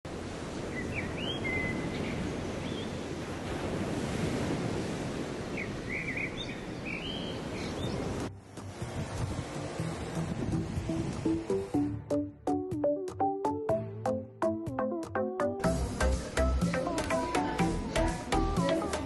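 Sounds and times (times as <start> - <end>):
sea waves washing on shore: 0.1 - 11.8
birds chirping: 0.8 - 3.0, 5.5 - 8.2.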